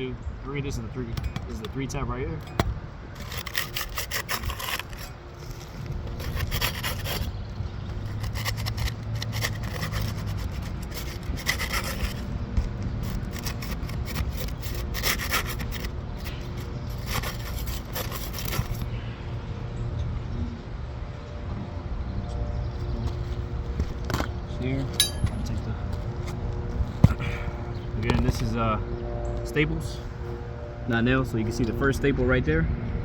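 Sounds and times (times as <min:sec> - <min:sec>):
pry tool scraping roof shingles: 0:02.4 - 0:18.9.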